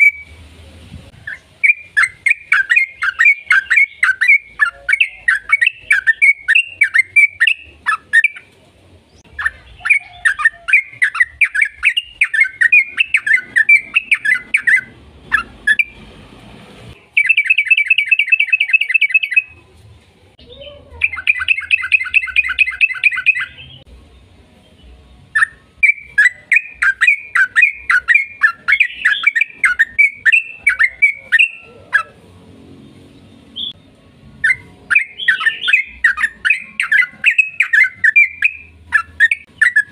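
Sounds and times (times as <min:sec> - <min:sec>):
bird fast trills: 0:01.2 - 0:08.4, 0:09.3 - 0:16.0, 0:21.0 - 0:23.7, 0:25.4 - 0:32.2, 0:34.4 - 0:39.9
bird singing chattering phrases: 0:01.2 - 0:16.0, 0:17.0 - 0:19.6, 0:20.4 - 0:23.9, 0:25.3 - 0:32.2, 0:34.4 - 0:39.9.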